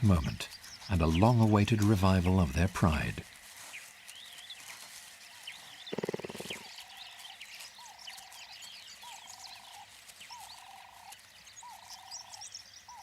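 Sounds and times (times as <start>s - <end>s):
high chirps of birds or insects: 0.0s - 13.0s
pulsed trilling animal call: 5.9s - 6.7s.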